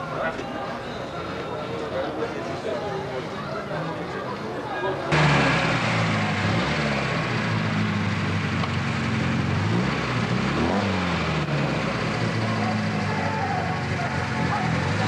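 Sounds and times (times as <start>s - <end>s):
car engine idling: 5.1s - 15.0s.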